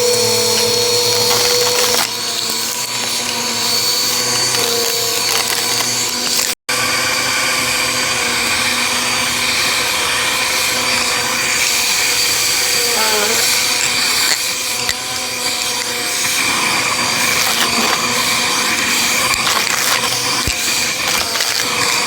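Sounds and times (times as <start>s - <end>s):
vacuum cleaner motor whine: 0.0s - 22.0s.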